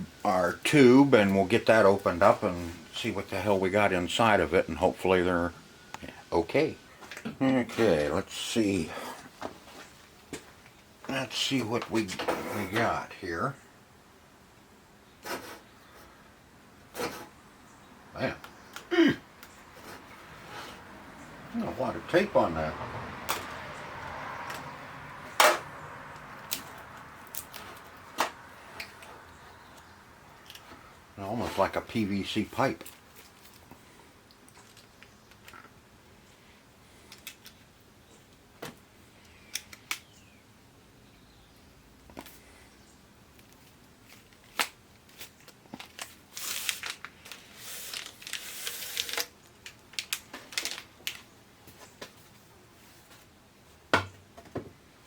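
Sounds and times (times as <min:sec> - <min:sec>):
plastic packaging crinkling and tearing: 0:32.7 - 0:33.7, 0:43.5 - 0:51.3.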